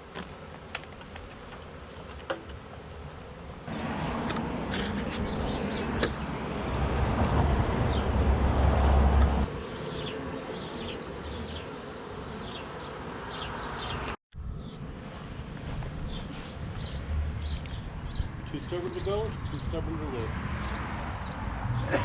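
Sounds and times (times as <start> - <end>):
bee swarm buzzing: 0.0 - 14.2.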